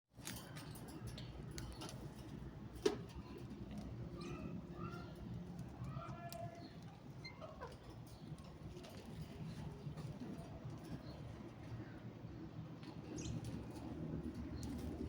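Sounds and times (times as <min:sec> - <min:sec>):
parrots chirping and calling: 0:04.2 - 0:09.0.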